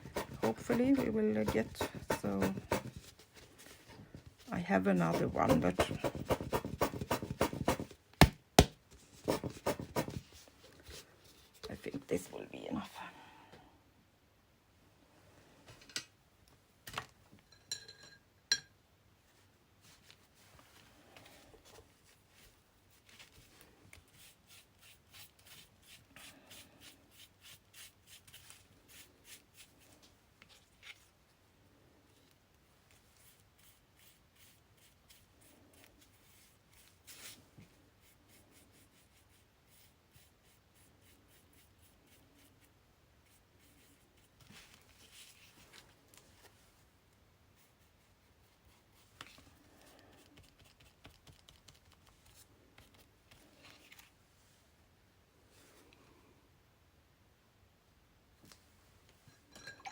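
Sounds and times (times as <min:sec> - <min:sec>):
brush strokes on paper: 0:00.0 - 0:07.8, 0:19.8 - 0:31.2, 0:32.9 - 0:45.8.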